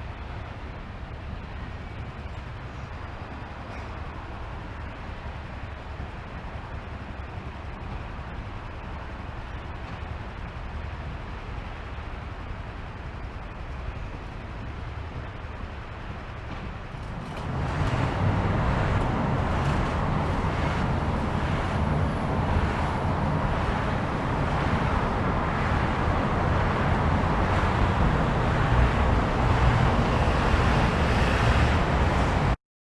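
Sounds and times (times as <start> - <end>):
road traffic passing: 15.6 - 32.6.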